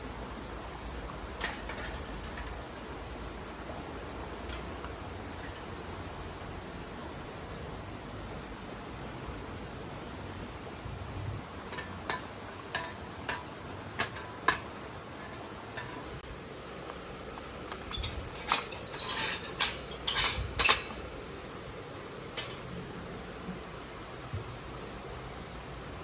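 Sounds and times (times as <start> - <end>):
camping gear clinking: 17.3 - 21.1.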